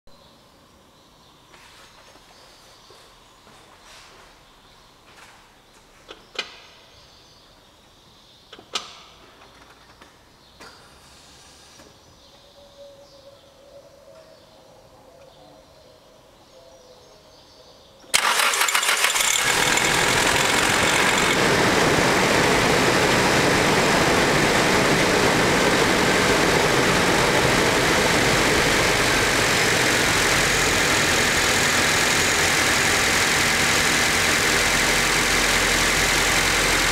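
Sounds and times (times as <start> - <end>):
car engine starting and idling: 18.1 - 36.9.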